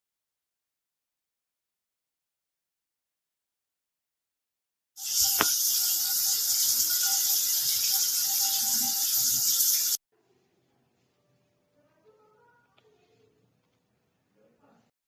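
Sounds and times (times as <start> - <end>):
shower head spraying water: 5.0 - 10.0.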